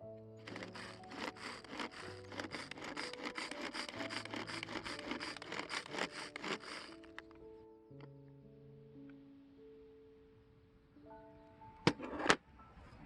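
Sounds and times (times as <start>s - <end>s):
soft background music: 0.0s - 13.0s
blade strokes against wood: 0.4s - 7.3s.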